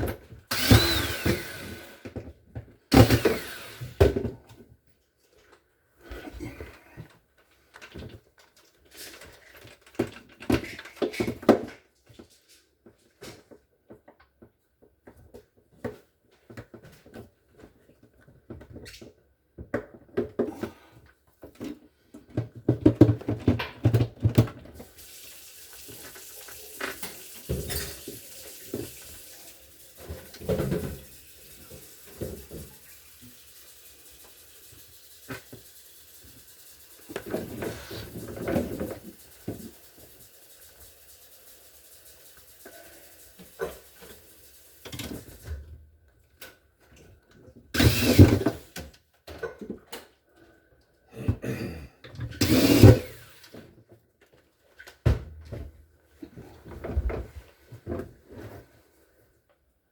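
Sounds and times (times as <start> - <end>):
plastic parts knocking and rattling: 7.6 - 12.4, 21.4 - 24.8.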